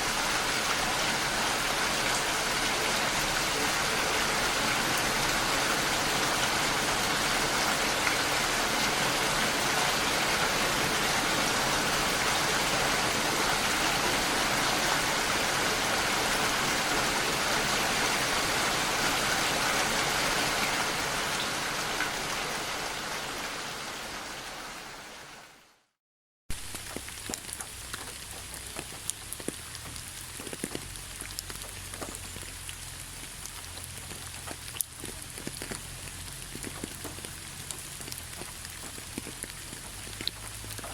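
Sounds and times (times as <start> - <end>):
heavy rain: 0.0 - 25.9, 26.5 - 40.9
drops pattering and dripping: 26.5 - 40.9.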